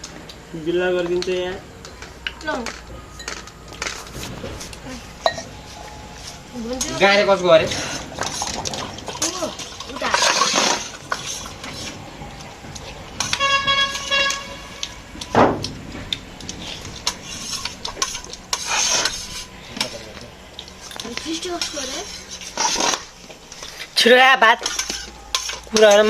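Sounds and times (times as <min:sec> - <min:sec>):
vehicle horn: 0:13.2 - 0:15.2
spoons clinking on metal plates: 0:24.5 - 0:26.0.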